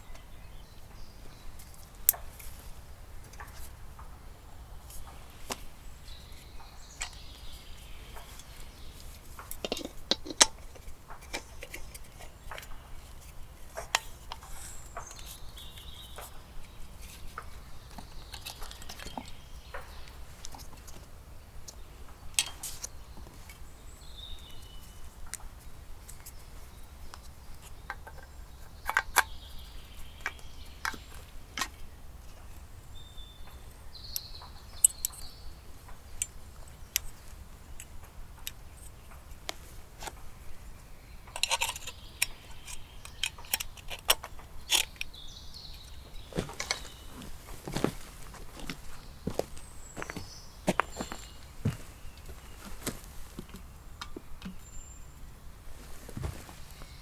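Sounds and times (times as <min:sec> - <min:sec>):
sharp clicks and clinks: 0:41.3 - 0:47.0.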